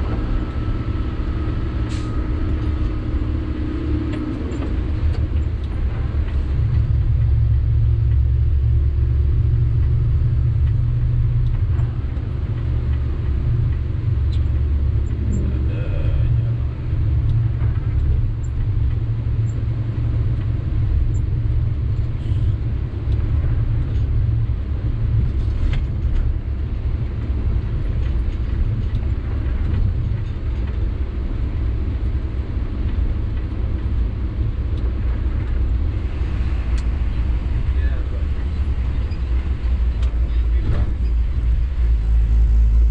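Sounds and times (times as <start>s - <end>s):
road noise: 0.0s - 42.9s
truck diesel engine rumbling: 0.0s - 42.9s.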